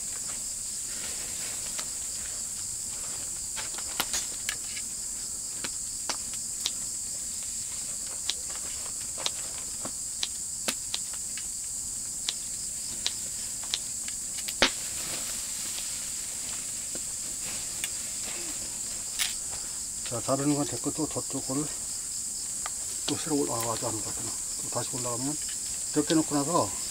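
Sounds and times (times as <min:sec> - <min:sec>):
crickets chirring: 0:00.0 - 0:26.9
sharp clicks and snaps: 0:12.2 - 0:12.4.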